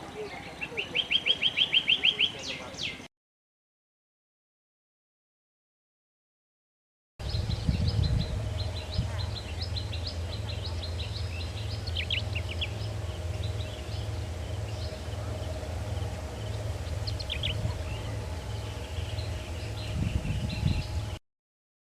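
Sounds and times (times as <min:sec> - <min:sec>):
sharp falling bird calls: 0:00.0 - 0:03.1
small birds chirping: 0:00.0 - 0:03.1, 0:07.2 - 0:21.2
low background rumble: 0:07.2 - 0:21.2.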